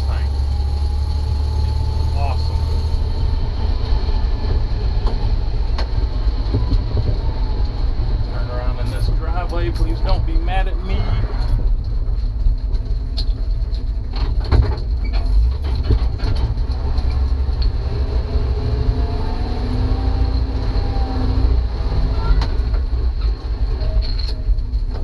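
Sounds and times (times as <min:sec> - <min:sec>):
truck engine running under load: 0:00.0 - 0:10.5
faint rising whine: 0:00.0 - 0:11.5
knocks and rattles: 0:03.8 - 0:18.0.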